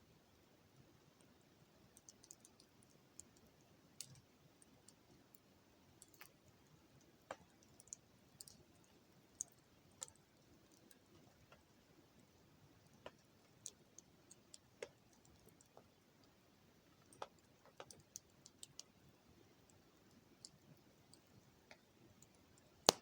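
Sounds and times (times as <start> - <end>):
wood fire crackling: 5.9 - 23.0.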